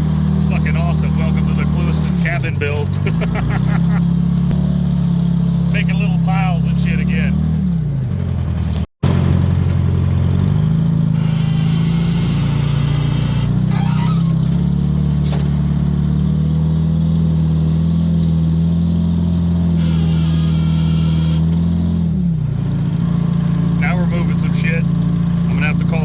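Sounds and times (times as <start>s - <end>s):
diesel loader engine running: 0.0s - 26.0s
short clanks: 11.2s - 16.0s.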